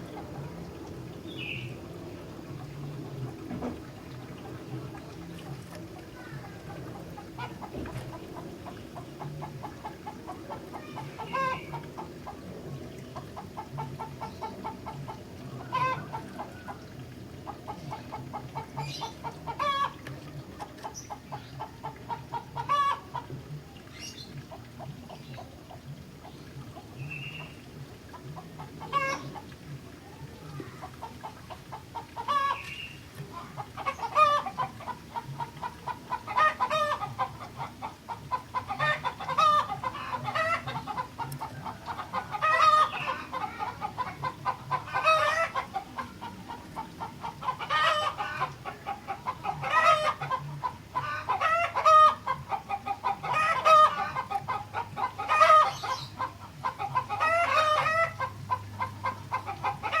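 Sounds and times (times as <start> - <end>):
bird singing warbled phrases: 18.8 - 19.2, 32.2 - 34.6, 55.6 - 56.3.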